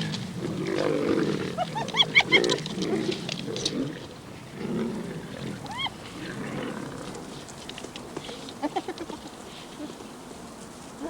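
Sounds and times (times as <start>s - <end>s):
lions growling and snarling: 0.0s - 8.8s.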